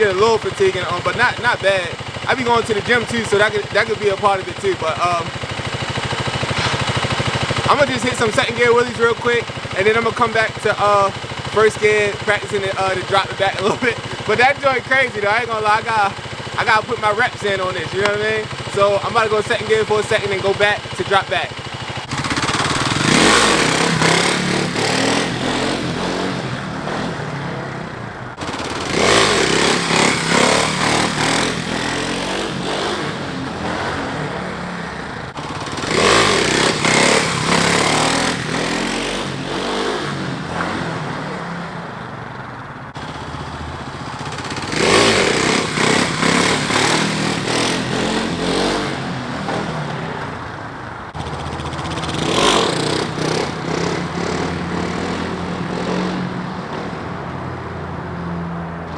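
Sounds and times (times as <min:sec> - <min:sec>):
motorcycle engine revving hard: 0:00.0 - 0:58.9.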